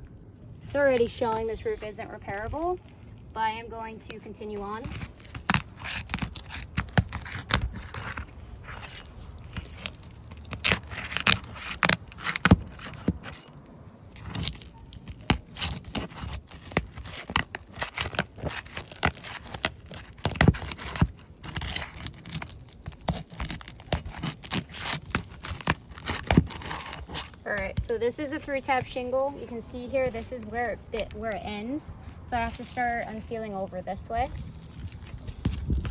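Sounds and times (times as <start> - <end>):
metal tool scraping shingles: 4.6 - 30.5.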